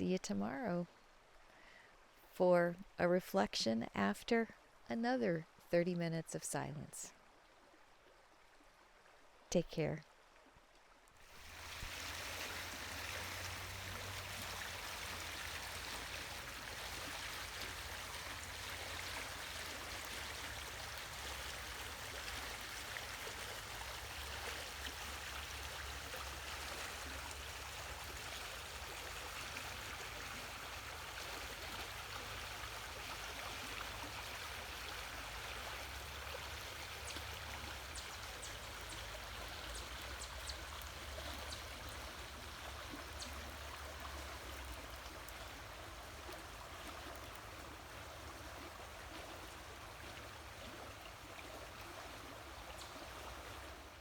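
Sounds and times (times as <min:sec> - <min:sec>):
water rushing over rocks: 0:11.2 - 0:36.0.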